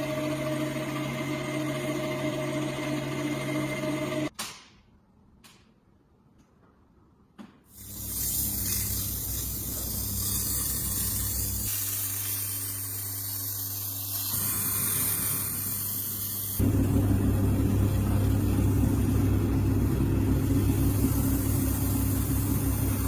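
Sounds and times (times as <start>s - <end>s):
loud machine: 0.0s - 4.3s, 16.5s - 23.0s
spray hissing: 7.8s - 16.6s
low hum: 16.6s - 23.0s.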